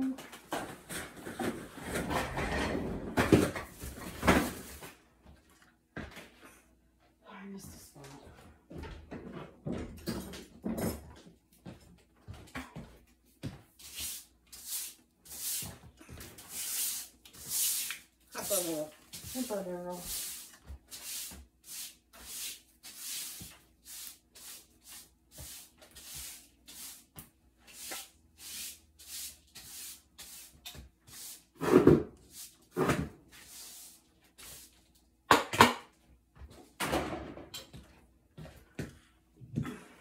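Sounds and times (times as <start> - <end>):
brushing strokes: 13.8 - 15.8, 16.4 - 31.5, 33.3 - 34.8.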